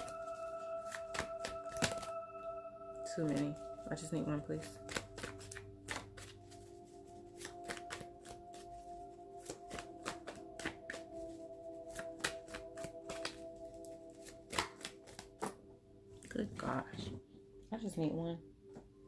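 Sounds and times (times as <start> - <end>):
soft background music: 0.0 - 19.0
cards being shuffled: 0.8 - 2.1, 4.6 - 15.6.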